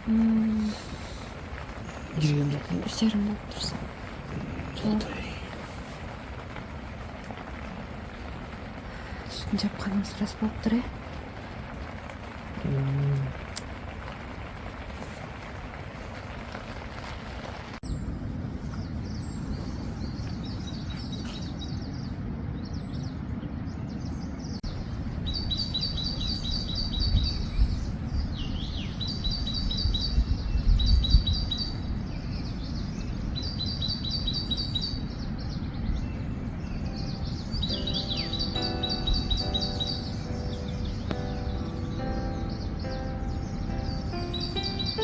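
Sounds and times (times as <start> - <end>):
low rumbles: 0.0 - 18.2, 34.9 - 45.0
steady outdoor noise: 0.0 - 45.0
songbird trilling: 36.0 - 45.0.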